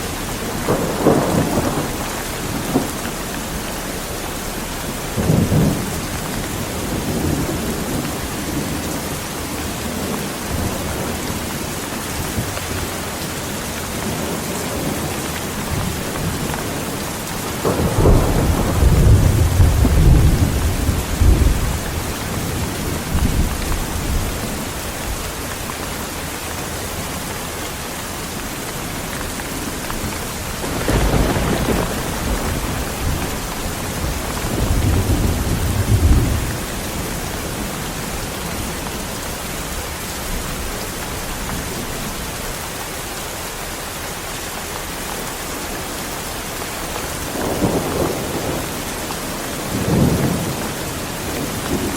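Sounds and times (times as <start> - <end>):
thunder rumbling: 0.0 - 25.9, 28.5 - 42.4, 46.9 - 51.9
heavy rain falling: 0.0 - 51.9.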